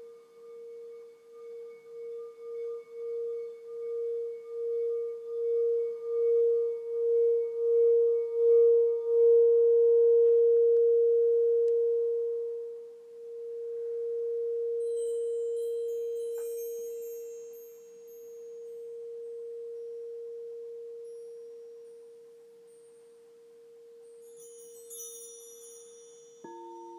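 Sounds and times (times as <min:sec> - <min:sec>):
singing bowl tone: 0:00.0 - 0:26.9
high chime notes tinkling: 0:14.8 - 0:20.0, 0:21.0 - 0:26.9.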